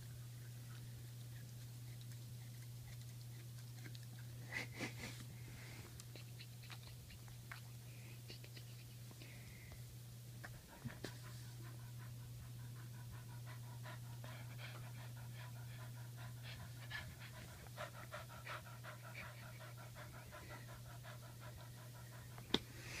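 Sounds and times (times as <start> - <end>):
steady low hum: 0.0 - 23.0
dog panting: 10.4 - 23.0.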